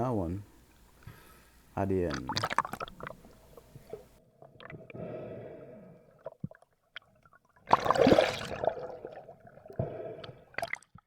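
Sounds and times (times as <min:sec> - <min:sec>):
water gurgling and sloshing: 0:02.0 - 0:11.0.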